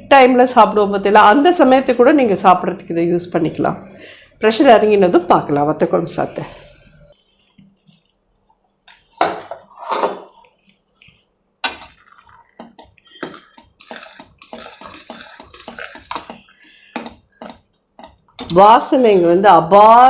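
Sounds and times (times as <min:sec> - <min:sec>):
ladle stirring wet rice: 0:06.1 - 0:19.6.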